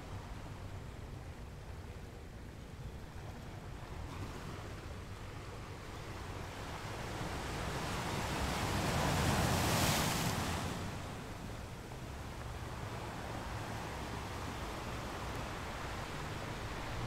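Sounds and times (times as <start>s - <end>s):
sea waves surging: 5.6s - 17.0s.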